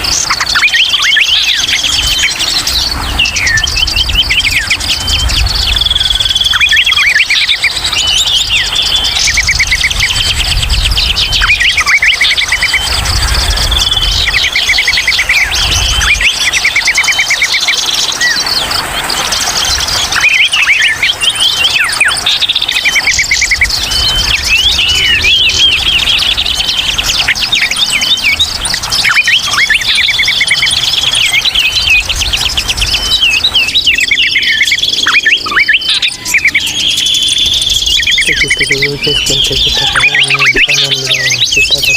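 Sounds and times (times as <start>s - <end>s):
songbirds chirping and trilling: 0.0s - 41.9s.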